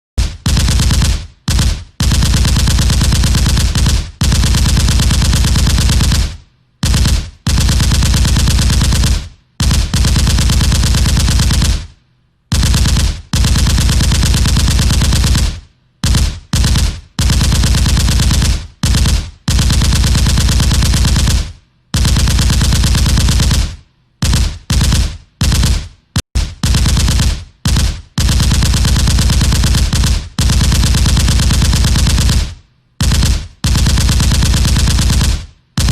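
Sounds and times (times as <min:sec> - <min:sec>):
automatic gunfire bursts: 0:00.2 - 0:35.9.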